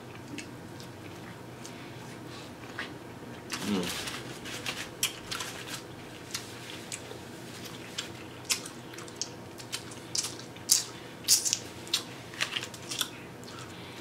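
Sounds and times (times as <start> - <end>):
wet chewing and lip-smacking: 6.2 - 13.8.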